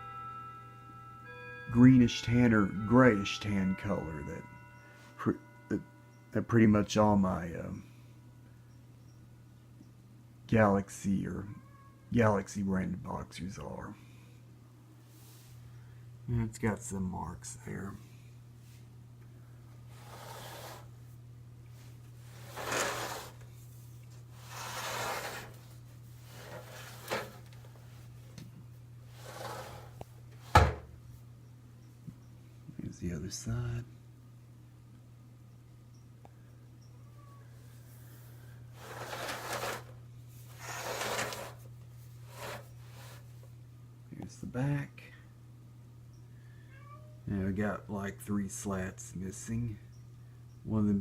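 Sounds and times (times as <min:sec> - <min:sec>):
steady low hum: 0:00.0 - 0:11.5, 0:12.2 - 0:46.7
fan scraping while moved: 0:19.9 - 0:21.0, 0:22.2 - 0:23.6, 0:24.2 - 0:28.1, 0:29.1 - 0:30.8, 0:38.7 - 0:43.5
plastic fan handling noise: 0:26.4 - 0:28.4.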